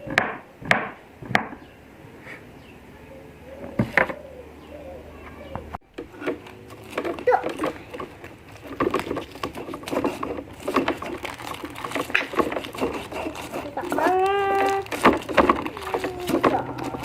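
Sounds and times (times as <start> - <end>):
dove cooing: 2.9 - 6.3, 12.0 - 17.0
kitchen clatter: 5.9 - 17.0
background voices: 11.9 - 17.0.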